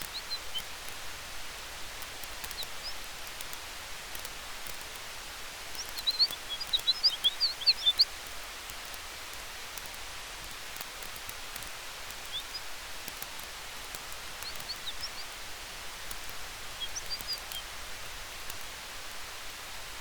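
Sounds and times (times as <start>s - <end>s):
campfire crackling and popping: 0.0s - 19.6s
wind through trees: 0.0s - 20.0s
high chirps: 5.8s - 8.1s, 14.4s - 15.4s, 16.1s - 17.6s.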